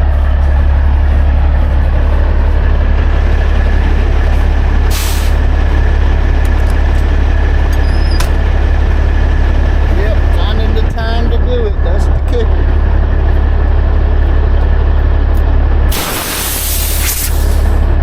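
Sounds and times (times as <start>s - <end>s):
diesel engine idling: 0.0s - 18.0s
air brake hiss: 4.9s - 5.4s, 15.9s - 17.8s.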